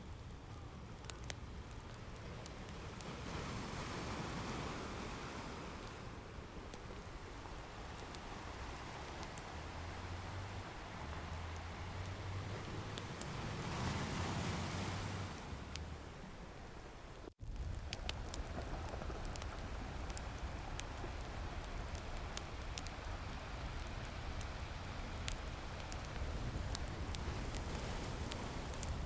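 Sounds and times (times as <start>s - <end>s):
wood fire crackling: 0.0s - 29.0s
ocean waves washing in: 2.2s - 17.4s.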